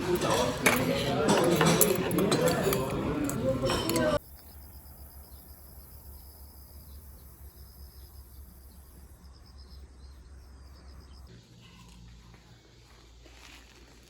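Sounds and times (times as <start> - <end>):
insect chirping: 4.2 - 14.0.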